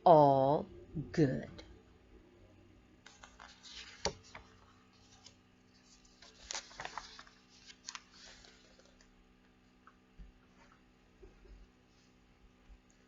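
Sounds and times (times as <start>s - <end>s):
book pages rustling: 3.0s - 9.2s.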